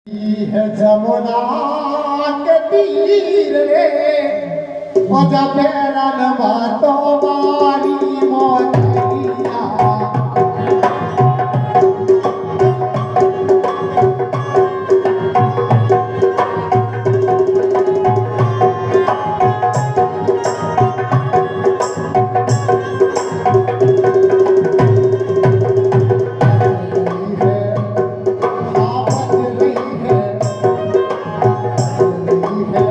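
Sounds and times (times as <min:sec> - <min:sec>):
held melody line: 0:04.9 - 0:32.9
hand drums beating: 0:07.2 - 0:32.9.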